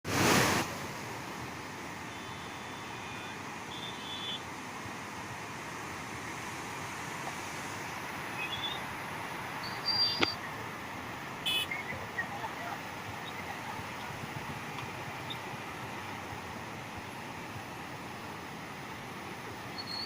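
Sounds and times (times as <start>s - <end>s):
floodwater rushing: 0.1s - 20.0s.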